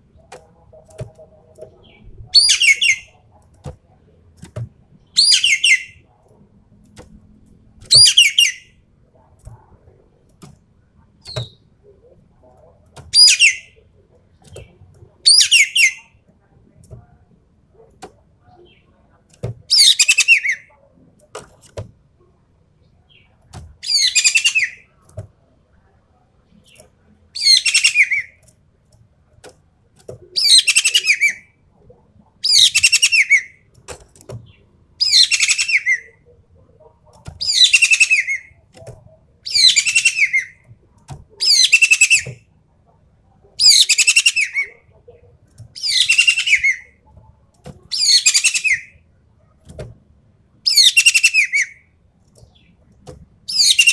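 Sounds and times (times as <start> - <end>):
bird harsh rattling calls: 35.0 - 36.1, 37.4 - 38.5, 39.5 - 40.5, 41.4 - 42.3, 45.8 - 46.8, 47.9 - 48.9.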